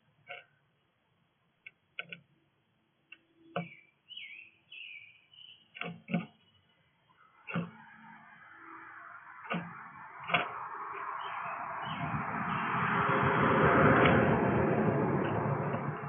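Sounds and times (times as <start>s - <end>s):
small birds chirping: 3.1s - 13.3s
sharp taps and knocks: 7.5s - 7.9s, 9.5s - 10.7s.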